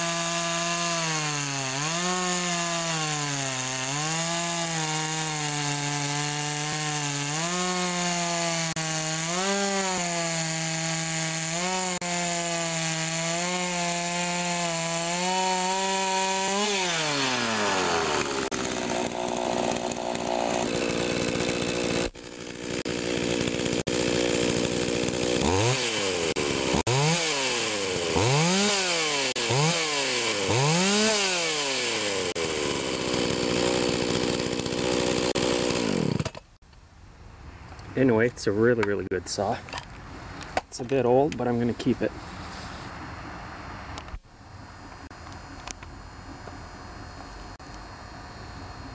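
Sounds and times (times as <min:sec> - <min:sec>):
chainsaw engine revving: 0:00.0 - 0:36.6.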